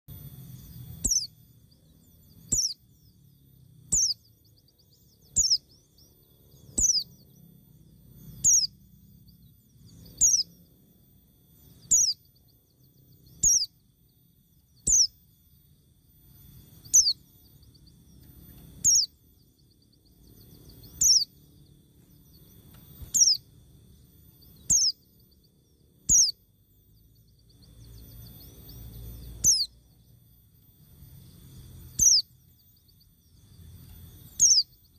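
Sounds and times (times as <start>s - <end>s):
faint low rumble: 0.1s - 34.9s.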